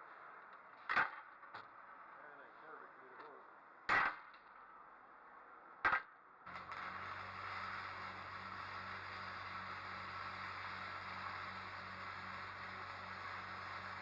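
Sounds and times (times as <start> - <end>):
low electrical hum: 0.0 - 14.0
welding arc hissing: 6.5 - 14.0.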